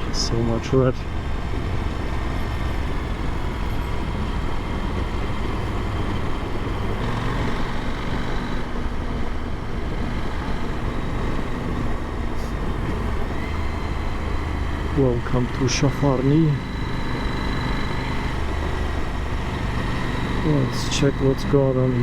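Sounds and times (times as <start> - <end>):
motorcycle engine drone: 0.0 - 22.0.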